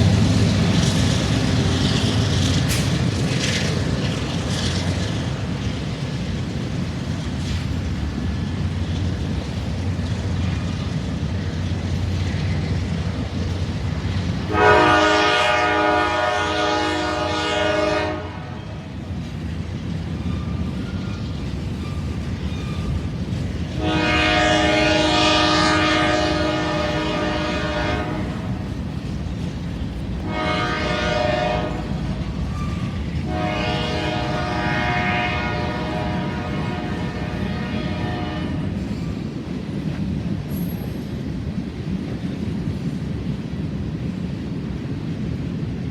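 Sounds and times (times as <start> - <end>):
train locomotive rumbling: 0.0 - 45.9
train air horn blasts: 14.5 - 18.9, 23.7 - 28.7, 30.2 - 38.8.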